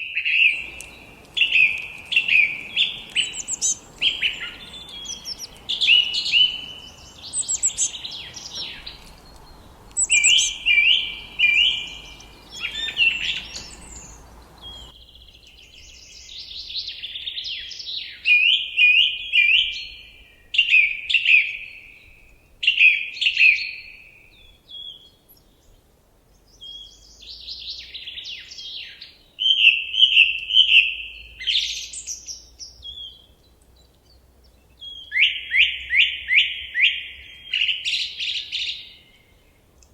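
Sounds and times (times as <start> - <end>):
songbirds chirping: 0.1 - 16.8
faint background hiss: 0.4 - 16.4.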